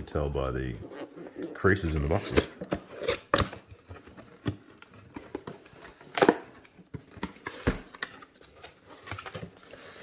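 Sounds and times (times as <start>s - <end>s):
cardboard rustling: 2.1s - 10.0s.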